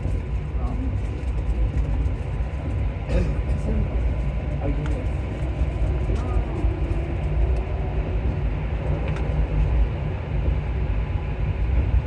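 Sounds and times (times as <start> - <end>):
metro train rumbling in tunnel: 0.0 - 12.0.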